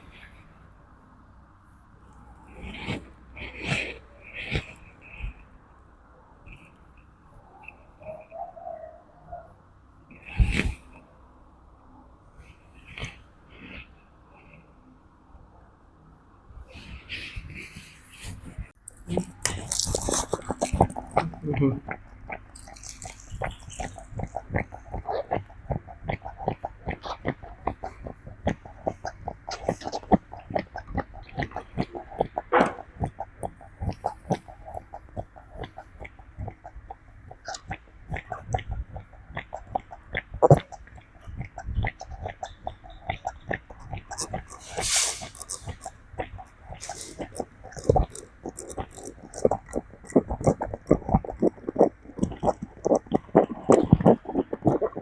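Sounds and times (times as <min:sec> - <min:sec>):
monkey mouth smacks and clicks: 0:22.6 - 0:55.0
monkey wet smacking mouth sounds: 0:43.2 - 0:55.0
rasping sound: 0:44.0 - 0:55.0.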